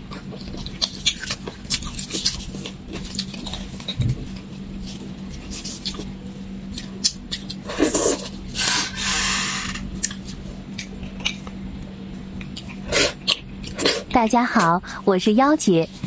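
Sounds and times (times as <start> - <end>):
wet mouth eating sounds: 0.0 - 6.1, 12.4 - 14.1
steady low hum: 0.0 - 16.0.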